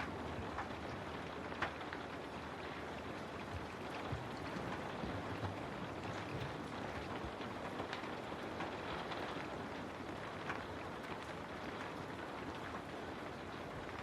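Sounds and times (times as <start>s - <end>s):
raindrops striking close by: 0.0s - 14.0s
steady rain: 0.0s - 14.0s.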